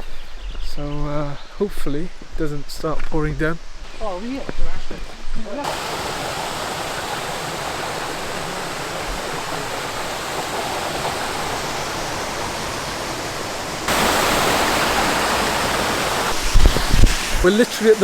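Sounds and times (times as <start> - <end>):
waterfall rushing: 5.6 - 18.0.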